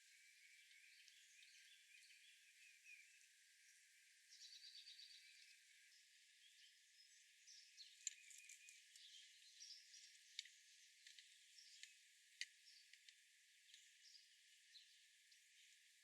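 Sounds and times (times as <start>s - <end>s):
small bird chirps: 0.4s - 13.0s.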